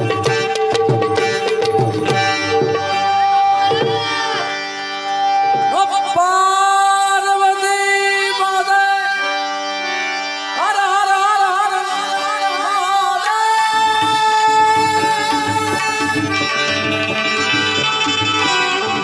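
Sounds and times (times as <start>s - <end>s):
tabla: 0.0s - 19.0s
person singing folk song: 5.6s - 9.6s, 10.5s - 16.5s.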